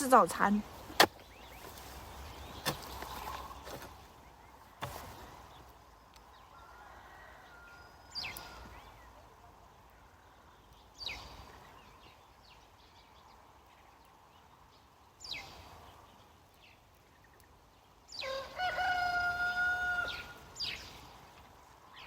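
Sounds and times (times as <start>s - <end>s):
rooster crowing: 6.5s - 8.6s, 18.2s - 20.4s.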